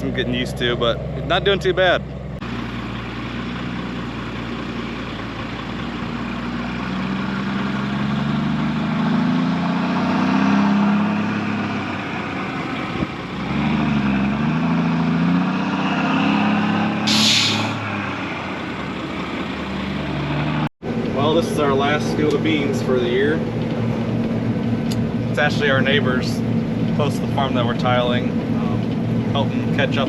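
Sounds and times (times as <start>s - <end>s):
heavy diesel engine running: 0.0s - 10.0s, 17.0s - 30.0s
air hiss: 17.1s - 17.8s.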